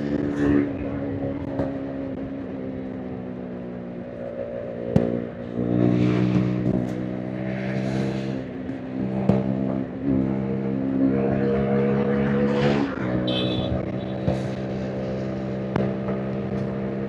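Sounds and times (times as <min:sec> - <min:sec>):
motorcycle engine running: 0:13.1 - 0:17.0.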